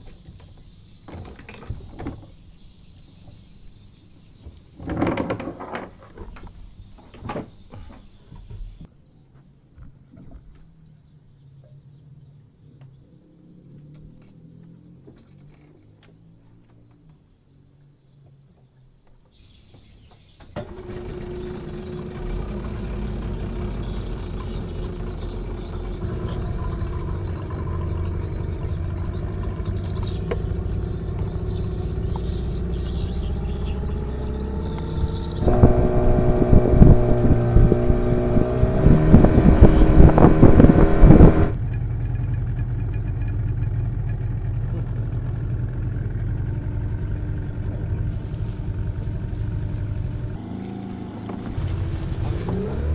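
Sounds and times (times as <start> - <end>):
outboard engine running: 20.5 - 52.9.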